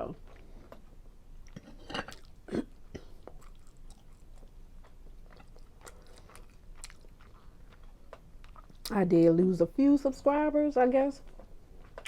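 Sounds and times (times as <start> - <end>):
chewing with wet mouth clicks: 0.2 - 8.9, 11.2 - 12.0.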